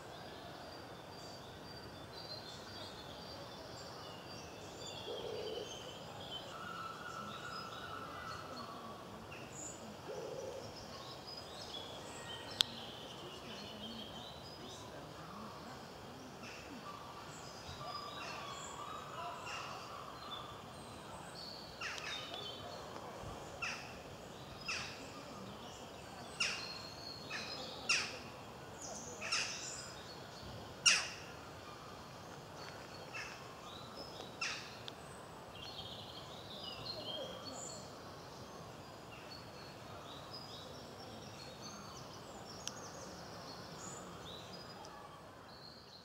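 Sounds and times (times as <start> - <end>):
songbirds twittering: 0.0 - 46.0
woodpecker call notes: 26.4 - 28.3, 29.2 - 30.0, 30.8 - 31.4.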